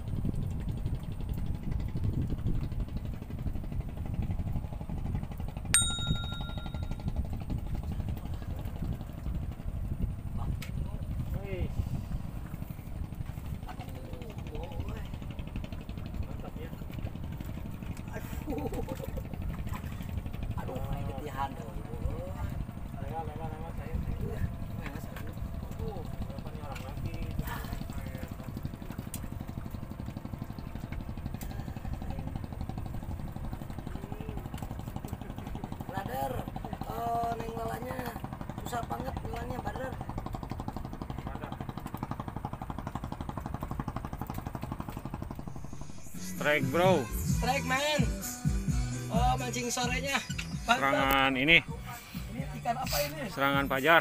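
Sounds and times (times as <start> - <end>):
small engine idling: 0.0 - 54.0
metallic ding: 5.8 - 7.1
steady low rumble: 44.2 - 47.6.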